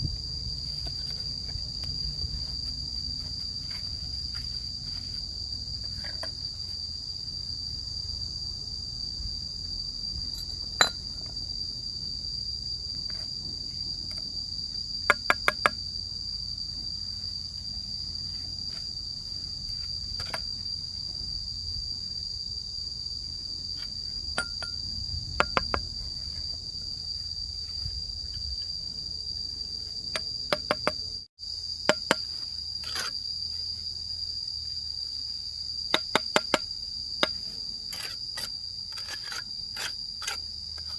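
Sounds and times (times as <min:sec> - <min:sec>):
high-pitched insect chorus: 0:00.0 - 0:40.9
sharp knocks: 0:25.4 - 0:25.9.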